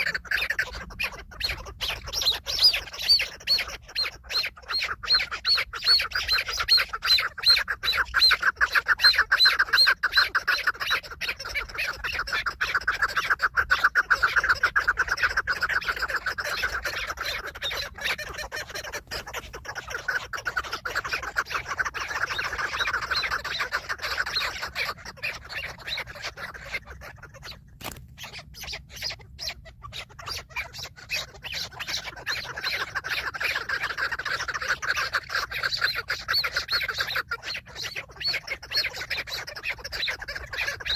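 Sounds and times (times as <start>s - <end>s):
partridges clucking: 27.7s - 28.3s.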